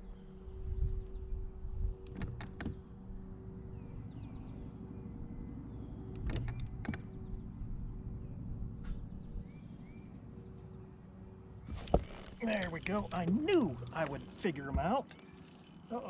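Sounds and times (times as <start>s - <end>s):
electric motor humming: 11.6s - 16.0s.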